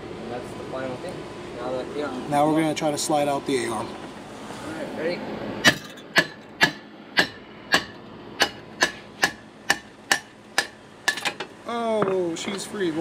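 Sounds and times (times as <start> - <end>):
hammer strikes on metal: 5.6 - 12.2.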